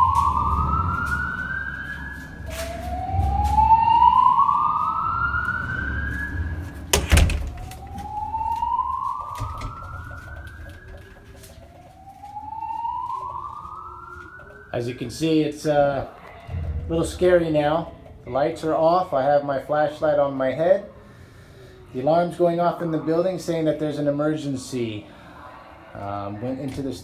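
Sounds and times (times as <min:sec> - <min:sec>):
fire alarm siren whooping: 0:00.0 - 0:19.1
low rumble: 0:16.1 - 0:19.0.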